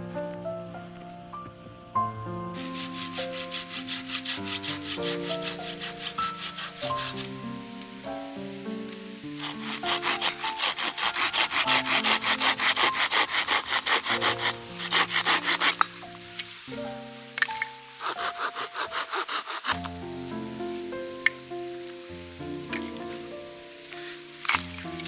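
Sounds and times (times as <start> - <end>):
soft background music: 0.0 - 25.0
hand saw cutting wood: 2.6 - 7.4, 9.4 - 16.5, 17.4 - 20.0, 24.0 - 25.0.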